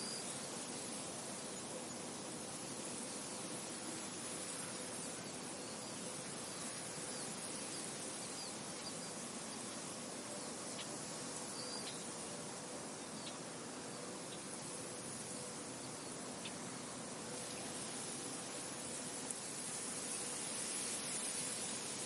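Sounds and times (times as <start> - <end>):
wind blowing through a field: 0.0 - 22.0
faint bird chirps: 3.0 - 19.0.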